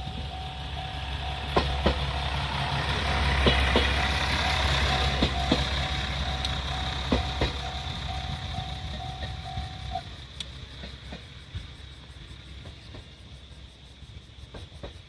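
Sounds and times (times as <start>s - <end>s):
level crossing warning bell: 0.0s - 2.8s, 4.0s - 10.1s
diesel railcar rumbling: 0.0s - 15.0s.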